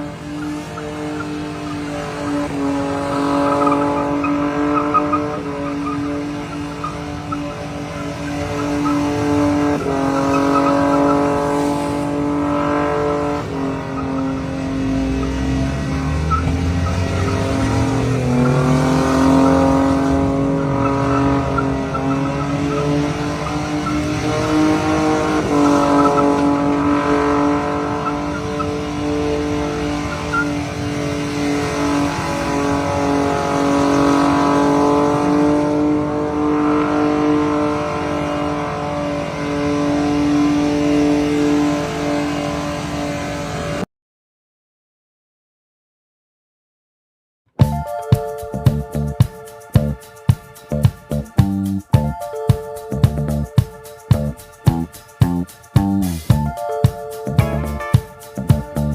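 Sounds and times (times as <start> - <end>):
car engine revving: 0.0 - 43.8, 48.5 - 58.9
car tires squealing: 0.0 - 43.8.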